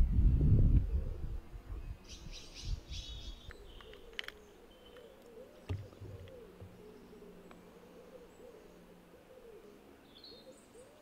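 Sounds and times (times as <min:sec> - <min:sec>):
birds chirping: 0:01.5 - 0:11.0
low knocks: 0:05.7 - 0:06.8.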